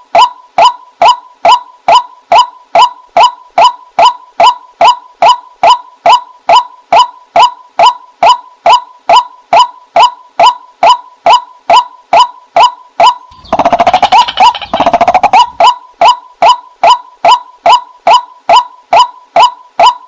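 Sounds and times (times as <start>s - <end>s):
waterhen kwak calls: 12.6s - 17.0s
bird rattling chatter: 13.3s - 15.6s.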